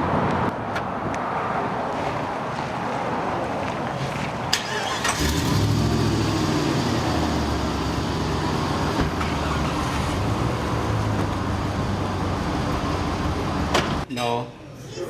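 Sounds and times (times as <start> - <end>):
engine rumbling: 3.6 - 14.1.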